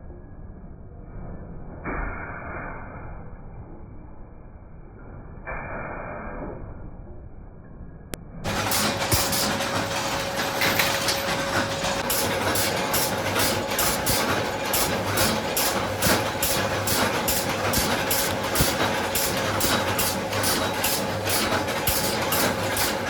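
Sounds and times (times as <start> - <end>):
machinery humming: 8.4 - 23.0
regular machine clatter: 8.4 - 23.0.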